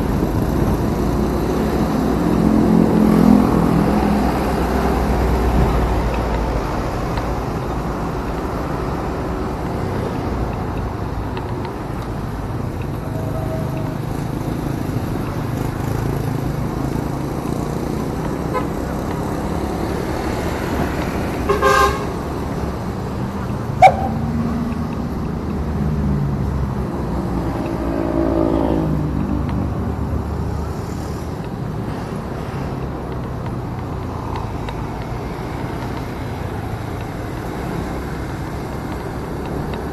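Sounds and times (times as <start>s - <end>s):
motorcycle engine and road rumble: 0.0s - 39.9s
passing engine revving: 0.0s - 39.9s
vehicle horn toots: 21.5s - 22.2s, 23.8s - 24.2s.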